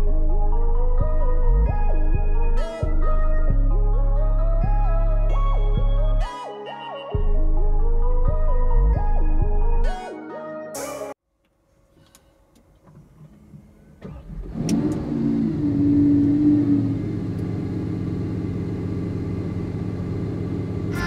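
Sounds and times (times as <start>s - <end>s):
car engine starting and idling: 11.9s - 21.0s.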